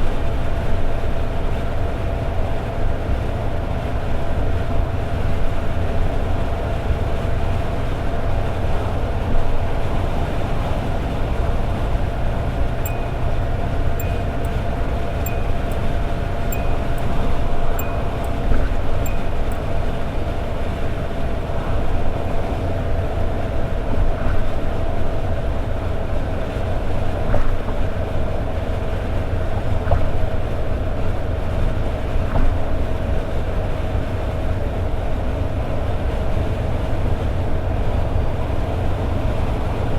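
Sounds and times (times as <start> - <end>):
road noise: 0.0 - 39.9
car engine cruising: 3.2 - 30.4
light regular ticks: 12.8 - 19.6.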